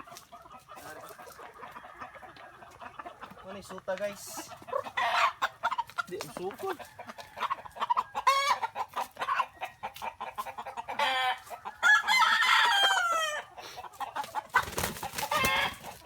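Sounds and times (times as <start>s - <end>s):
chickens clucking: 0.0s - 16.0s
rooster crowing: 11.0s - 13.5s.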